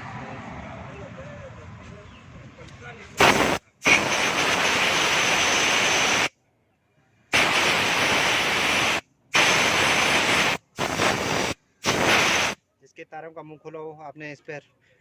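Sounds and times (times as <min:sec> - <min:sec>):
compressed air blow gun hissing: 0:03.2 - 0:06.3, 0:07.3 - 0:12.6.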